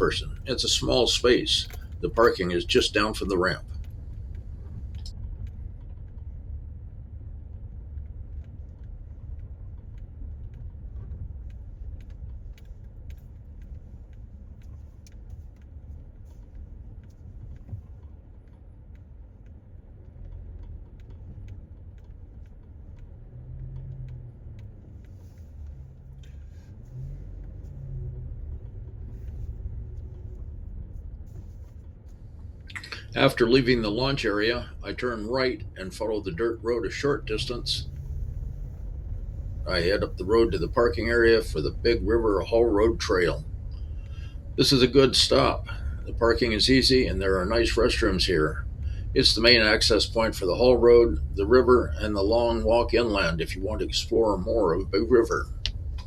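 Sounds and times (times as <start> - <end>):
car driving slowly: 0.0 - 56.0
faint clicks and knocks: 0.0 - 56.0.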